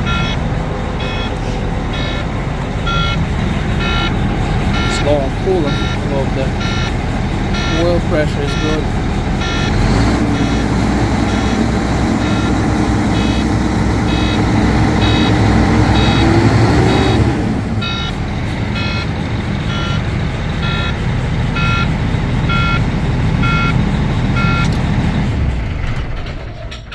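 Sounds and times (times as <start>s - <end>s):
electronic warning beeper: 0.0s - 18.2s, 18.8s - 21.0s, 21.6s - 21.9s, 22.5s - 22.8s, 23.4s - 23.8s
truck diesel engine running: 0.0s - 26.9s.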